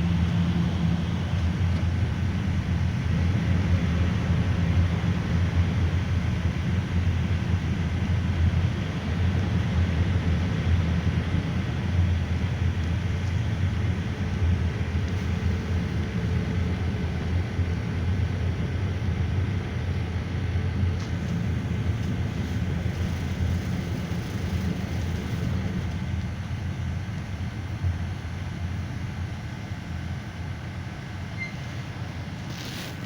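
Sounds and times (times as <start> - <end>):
engine and road rumble: 0.0 - 33.0
faint thin whine: 21.0 - 27.4, 31.1 - 33.0.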